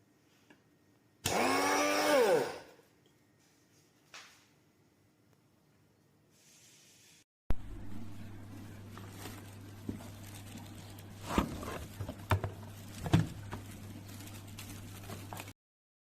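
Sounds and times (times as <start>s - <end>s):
steady low hum: 7.5s - 15.5s.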